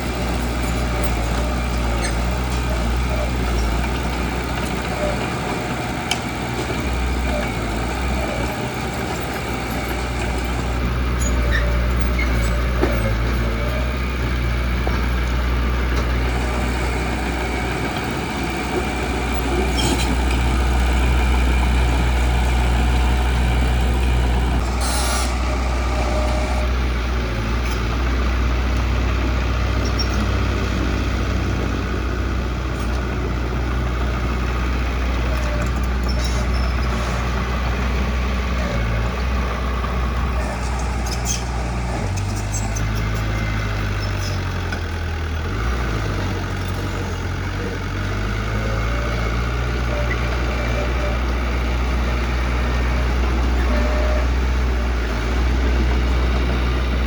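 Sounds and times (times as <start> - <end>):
heavy diesel engine droning: 0.0 - 57.0
short air hisses: 24.8 - 25.4.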